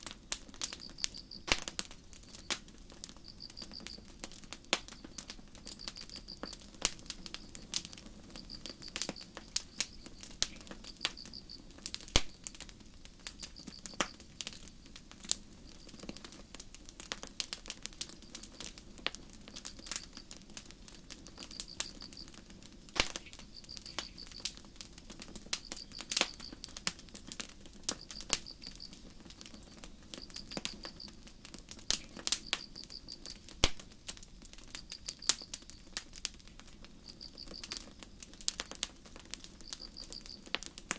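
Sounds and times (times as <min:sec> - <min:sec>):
campfire crackling and popping: 0:00.0 - 0:40.9
crickets chirping: 0:00.6 - 0:12.6, 0:13.2 - 0:14.4, 0:15.5 - 0:16.2, 0:18.0 - 0:18.8, 0:19.5 - 0:31.2, 0:31.8 - 0:33.5, 0:34.6 - 0:36.0, 0:36.7 - 0:38.8, 0:39.4 - 0:40.5.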